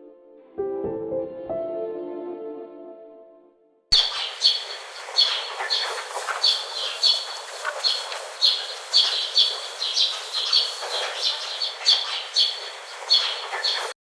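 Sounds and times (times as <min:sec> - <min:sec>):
parrot chirping: 0:03.9 - 0:14.0.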